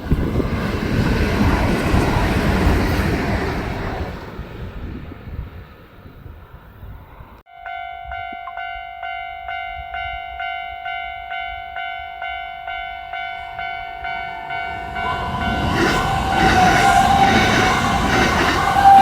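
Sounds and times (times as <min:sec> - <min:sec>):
level crossing warning bell: 0:07.5 - 0:17.2.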